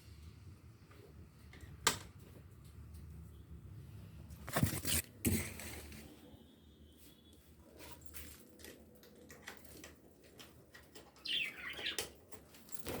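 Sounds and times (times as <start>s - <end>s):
bird chirps: 11.2s - 12.1s.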